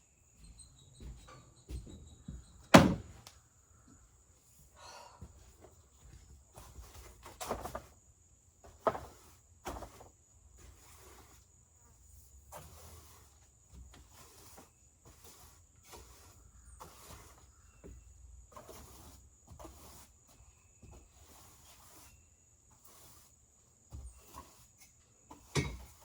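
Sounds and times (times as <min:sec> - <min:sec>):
faint taps and rustles: 0:00.4 - 0:02.6.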